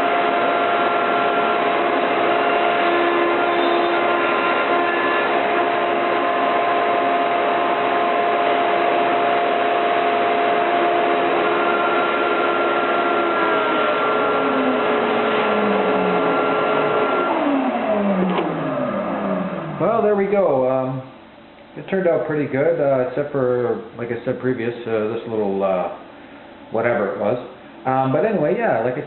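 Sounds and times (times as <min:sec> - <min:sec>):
router spindle whining: 0:00.0 - 0:20.1.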